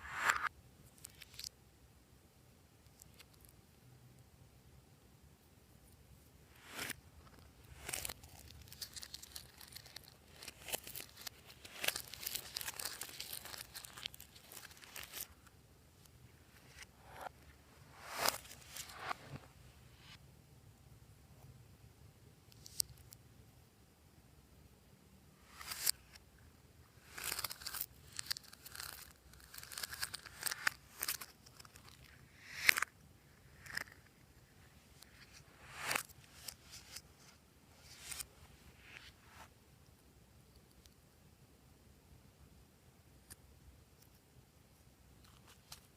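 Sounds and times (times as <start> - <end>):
slime crackling and popping: 7.8 - 15.3.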